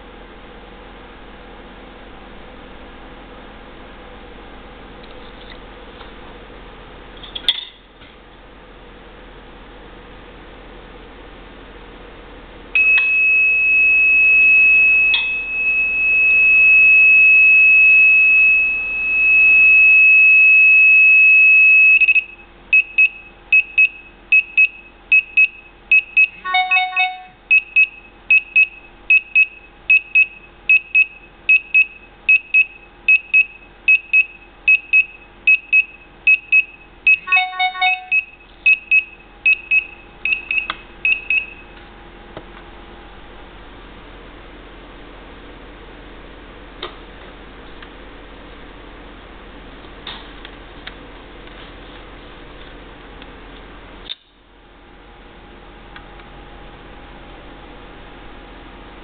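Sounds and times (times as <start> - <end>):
alarm buzzer high-pitched tone: 12.8 - 41.6
rapid alarm beeping: 12.8 - 41.7
multi-note alert tones: 26.4 - 27.4, 37.2 - 38.3.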